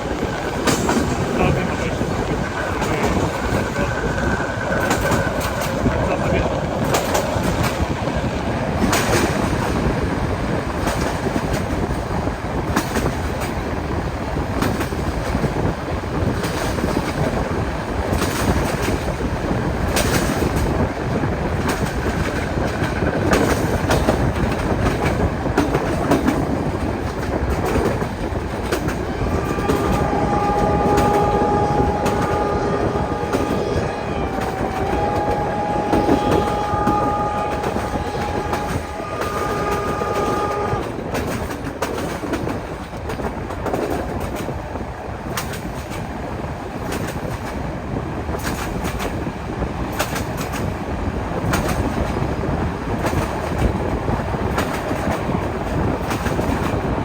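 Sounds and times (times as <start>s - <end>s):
train wheels clattering on rails: 0.0s - 57.0s
steam whistle blast: 29.1s - 40.9s.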